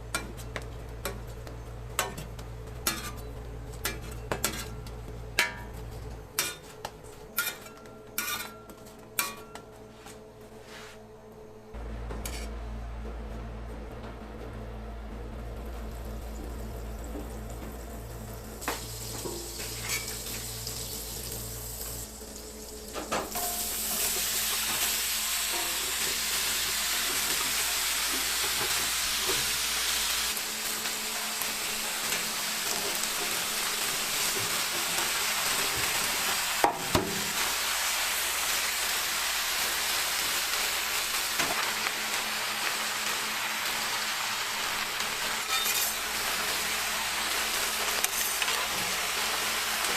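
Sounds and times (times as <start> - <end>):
low hum: 9.6 - 23.6
food sizzling: 15.8 - 49.9.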